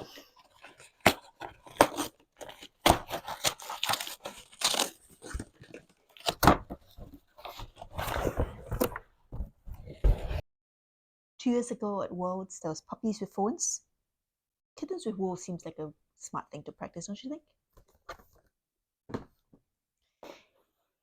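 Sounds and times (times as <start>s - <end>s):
packaging tearing and crinkling: 0.4s - 6.5s.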